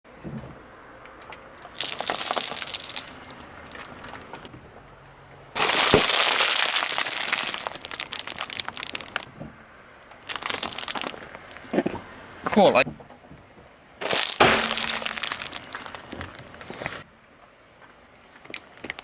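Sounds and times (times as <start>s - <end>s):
crunchy objects being crushed: 1.7s - 4.0s, 5.6s - 9.3s, 10.2s - 11.9s, 14.0s - 16.4s.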